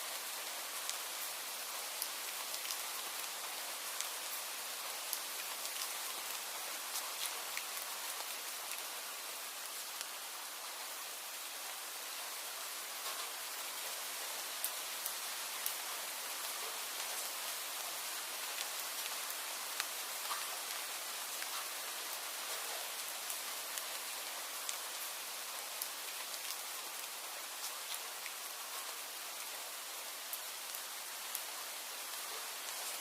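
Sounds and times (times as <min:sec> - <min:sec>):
rain hiss: 0:00.0 - 0:33.0
raindrop ticks: 0:02.0 - 0:02.9, 0:19.8 - 0:20.8.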